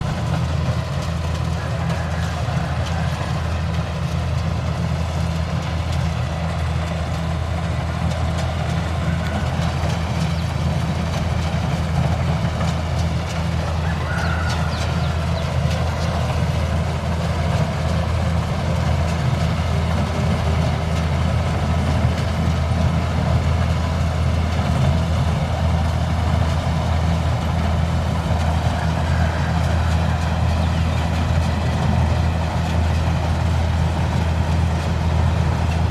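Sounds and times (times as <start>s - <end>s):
combine harvester engine running: 0.0s - 35.9s.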